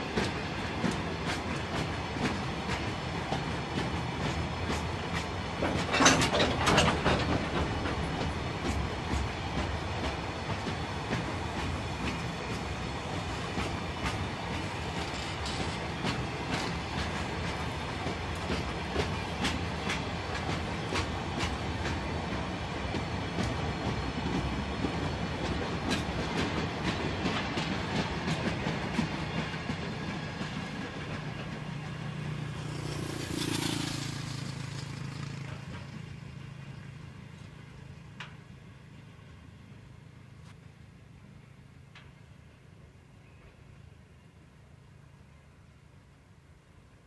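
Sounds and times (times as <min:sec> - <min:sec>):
freight wagons rolling past: 0:05.1 - 0:09.8, 0:13.4 - 0:21.5, 0:29.0 - 0:39.0.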